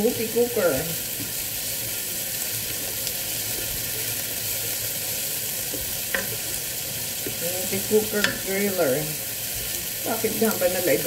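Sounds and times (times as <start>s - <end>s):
vegetables sizzling in a pot: 0.0s - 11.0s
spatula stirring: 2.7s - 8.8s.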